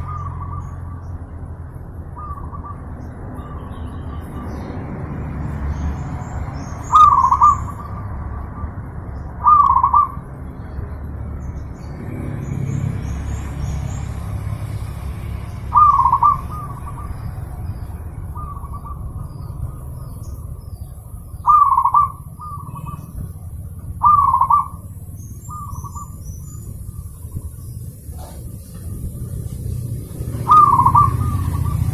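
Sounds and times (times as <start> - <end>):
small bird chirping: 5.6 - 31.9
dove cooing: 6.9 - 8.7, 9.4 - 10.3, 15.7 - 17.4, 21.4 - 23.2, 24.0 - 24.9, 30.2 - 31.9.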